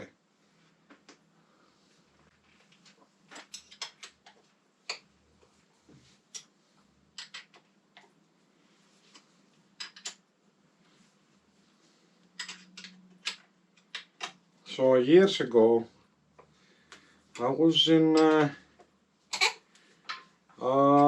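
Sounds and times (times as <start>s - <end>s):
metallic clicks of tools and bolts: 3.3s - 4.3s, 9.8s - 10.2s, 12.4s - 14.4s.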